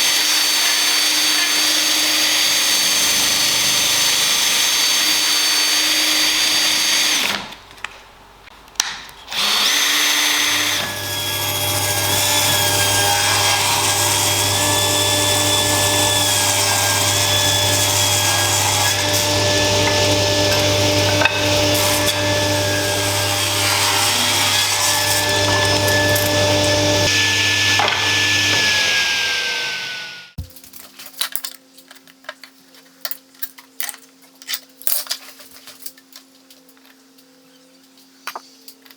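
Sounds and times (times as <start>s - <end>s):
power tool motor whine: 9.3s - 30.4s.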